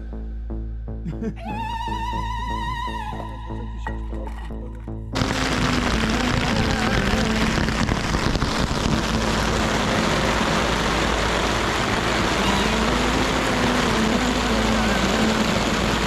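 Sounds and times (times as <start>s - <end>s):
engine running: 5.2s - 16.0s
loud rushing noise: 5.2s - 16.0s.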